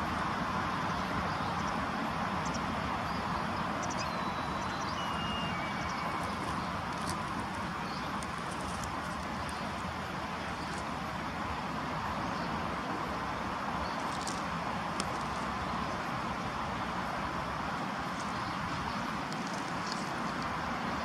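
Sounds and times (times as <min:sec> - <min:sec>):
distant traffic hum: 0:00.0 - 0:21.0
faint high bird chirps: 0:02.4 - 0:07.1.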